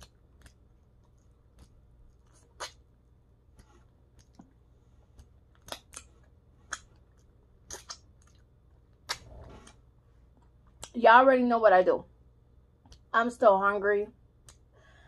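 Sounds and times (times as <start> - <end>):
wet mouth clicks and smacks: 0.0 - 2.9, 4.1 - 9.3
person chewing food: 0.0 - 9.8
soft breath: 14.7 - 15.0.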